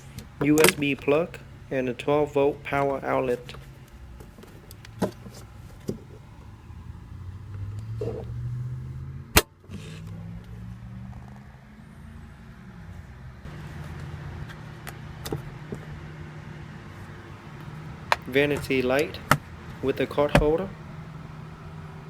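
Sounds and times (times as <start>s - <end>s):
car cabin hum: 0.0s - 9.0s, 17.0s - 22.0s.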